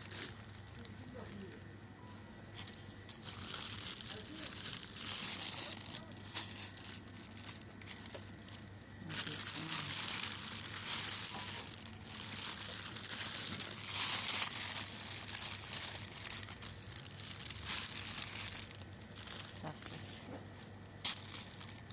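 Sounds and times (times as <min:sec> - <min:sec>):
rustling and crinkling: 0:00.0 - 0:21.9.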